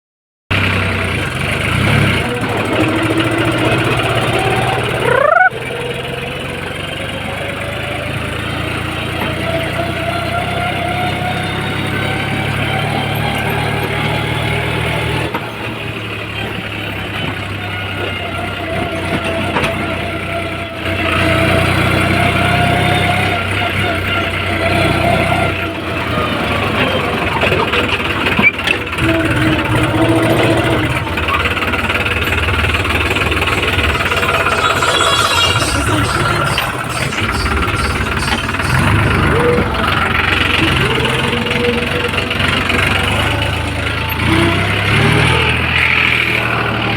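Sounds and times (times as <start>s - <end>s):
tractor engine running: 0.5s - 46.9s
rising whine: 2.3s - 5.8s, 32.4s - 46.9s.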